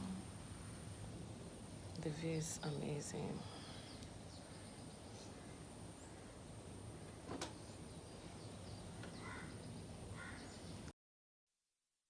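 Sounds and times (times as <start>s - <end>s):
birds chirping: 7.1s - 10.8s.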